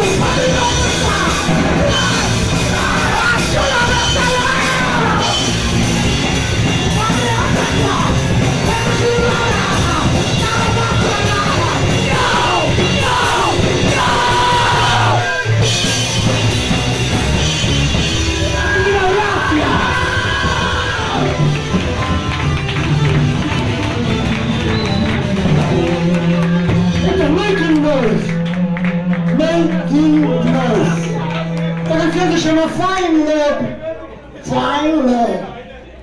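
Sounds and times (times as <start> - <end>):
yelled and sung vocals: 0.0 - 15.7, 18.2 - 21.5
punk band playing live: 0.0 - 33.4.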